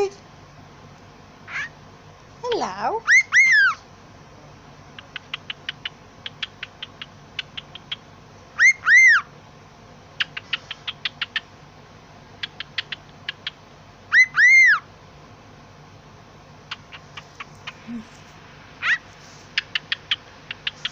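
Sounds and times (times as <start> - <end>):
bird clicking chirps: 5.0 - 8.0, 10.2 - 11.5, 12.4 - 13.6, 16.7 - 17.8, 19.5 - 20.9.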